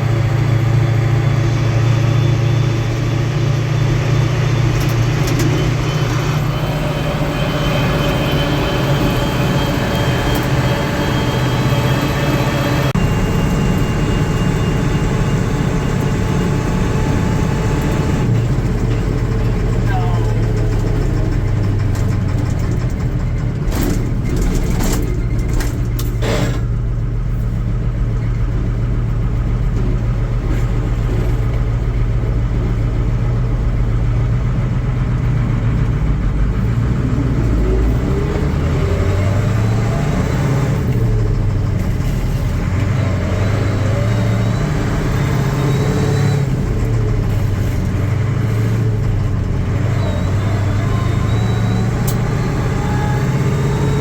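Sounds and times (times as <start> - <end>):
diesel truck engine revving: 0.0 - 54.0.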